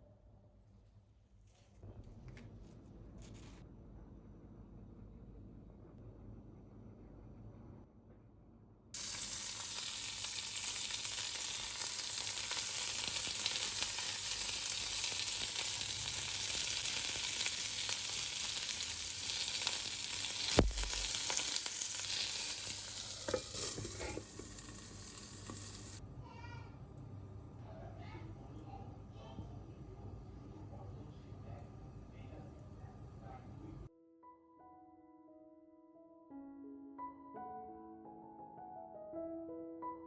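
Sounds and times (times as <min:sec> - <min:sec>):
food sizzling in oil: 0:09.0 - 0:26.0.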